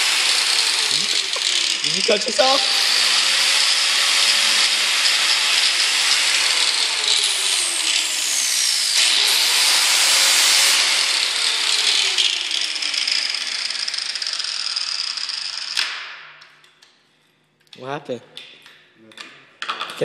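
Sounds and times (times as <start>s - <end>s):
electric grinder grinding: 0.0s - 15.8s.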